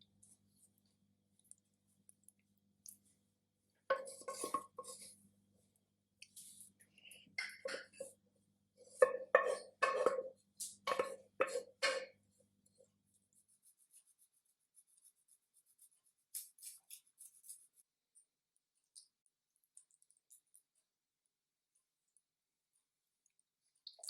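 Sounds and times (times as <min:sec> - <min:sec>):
kitchenware knocking and clinking: 0:03.9 - 0:04.9, 0:07.4 - 0:08.1, 0:09.0 - 0:12.2.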